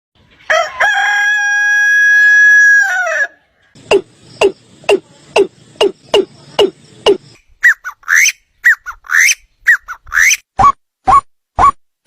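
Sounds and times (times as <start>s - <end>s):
rooster crowing: 0.5s - 3.4s
short sharp downward calls: 3.8s - 11.8s.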